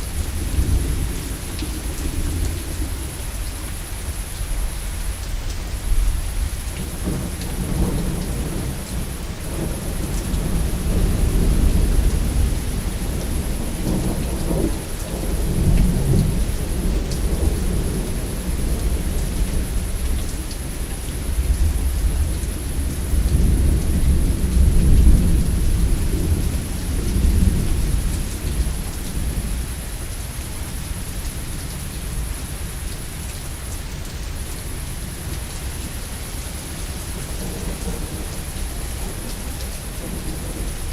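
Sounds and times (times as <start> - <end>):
steady rain: 0.0 - 40.9
thunder rumbling: 6.0 - 29.9, 36.7 - 40.9.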